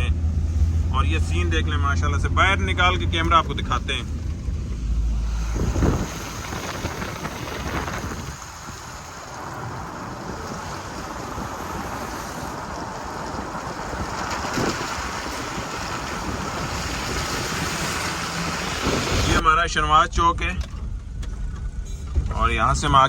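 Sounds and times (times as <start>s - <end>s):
road noise: 0.0s - 23.0s
wind rushing over microphone: 0.2s - 23.0s
light rain: 4.2s - 19.4s.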